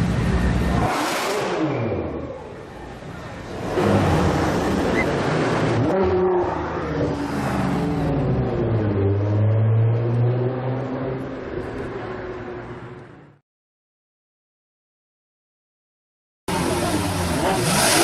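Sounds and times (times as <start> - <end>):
sports car engine revving: 16.5 - 18.0.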